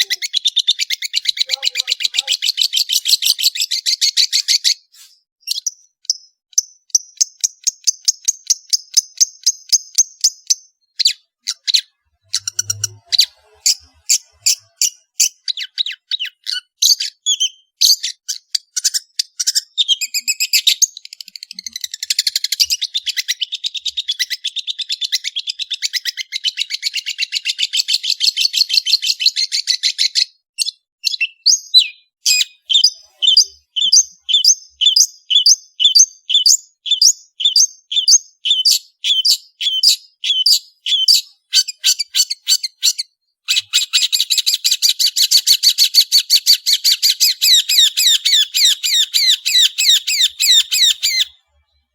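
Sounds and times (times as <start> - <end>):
shrike singing scratchy chatter: 1.1 - 4.9, 11.6 - 15.1.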